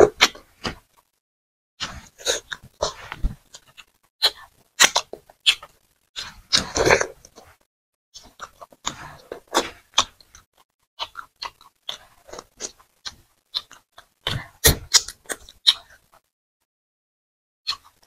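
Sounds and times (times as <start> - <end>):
wet chewing and lip-smacking: 8.2 - 16.2.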